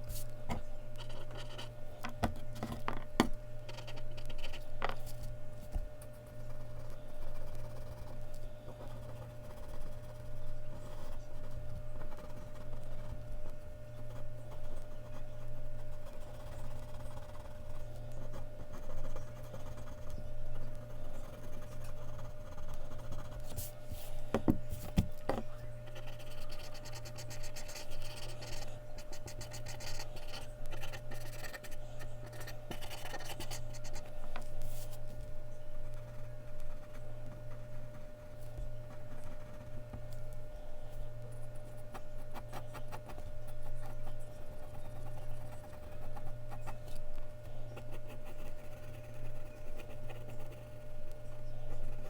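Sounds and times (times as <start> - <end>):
steady low hum: 0.0 - 52.0
pencil scratching on paper: 6.2 - 13.2, 14.0 - 20.2, 20.8 - 24.2, 24.8 - 35.1, 47.8 - 50.9.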